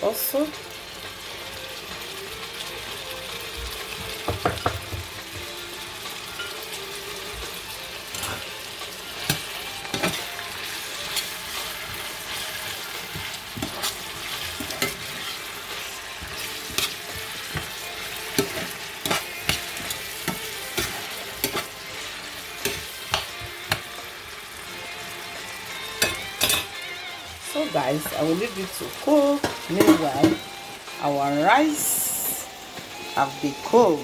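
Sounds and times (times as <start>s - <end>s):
vegetables sizzling in hot oil: 0.0s - 34.0s
spoon scraping against pot: 8.1s - 8.6s, 9.2s - 21.8s, 22.5s - 23.9s.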